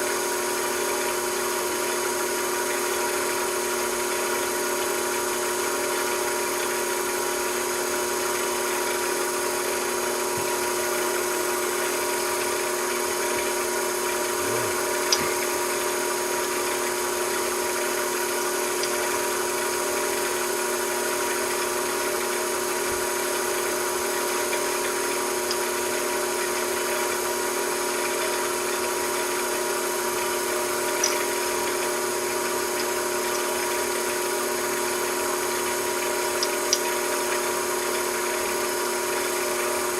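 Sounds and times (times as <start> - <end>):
machine tool humming and whining: 0.0 - 27.8.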